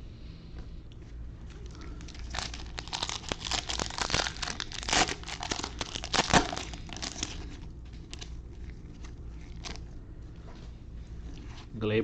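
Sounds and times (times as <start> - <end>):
foil wrapper crinkling: 1.5 - 10.0.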